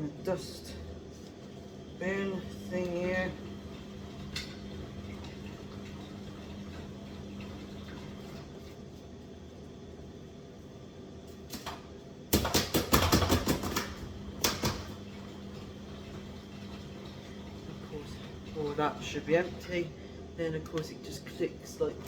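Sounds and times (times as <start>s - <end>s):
faint steady hum: 13.8s - 22.0s.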